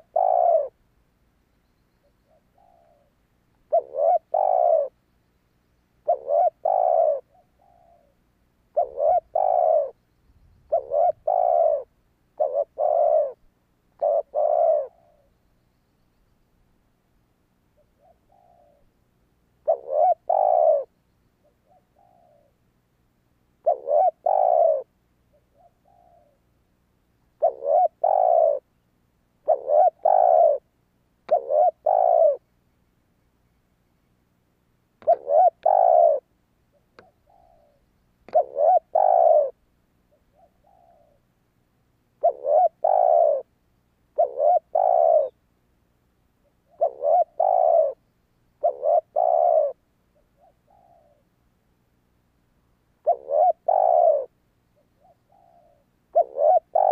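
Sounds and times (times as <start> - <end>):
dove cooing: 0.0 - 0.8, 2.0 - 5.0, 6.0 - 15.3, 17.8 - 19.0, 19.6 - 22.6, 23.6 - 26.5, 27.3 - 28.7, 29.4 - 30.7, 31.3 - 32.4, 35.0 - 41.3, 42.2 - 43.5, 44.1 - 45.4, 46.4 - 48.0, 48.6 - 51.3, 53.0 - 56.9.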